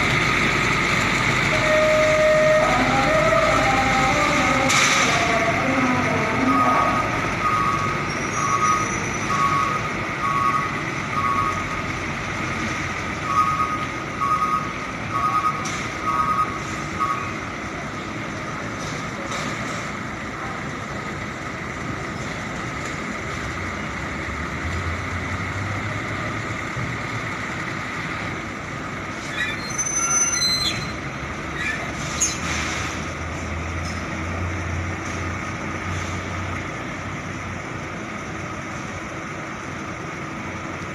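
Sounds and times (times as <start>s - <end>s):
truck reversing alarm beeping: 0.0s - 18.7s
heavy engine rumble: 0.0s - 40.9s
brief high squeal: 29.3s - 31.0s.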